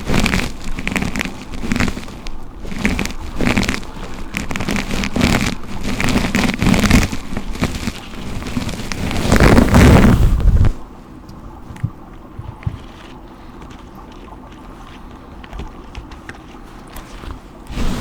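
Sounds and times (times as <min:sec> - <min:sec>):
brush swishing through hair: 0:17.1 - 0:18.0.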